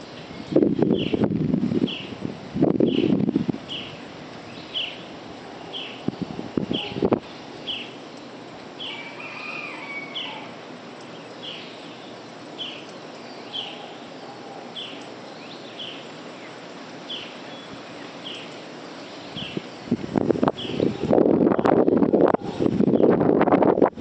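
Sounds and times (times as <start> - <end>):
bird warbling: 2.9 - 10.6, 11.2 - 22.6
bird high falling call: 2.9 - 19.9.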